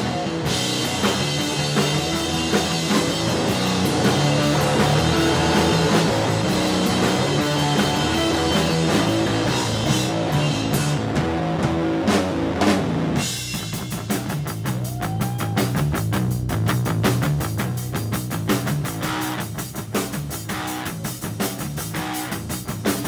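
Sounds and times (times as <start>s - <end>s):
rock music with drums and guitar: 0.0s - 23.0s
quick evenly spaced drum hits: 0.1s - 11.8s.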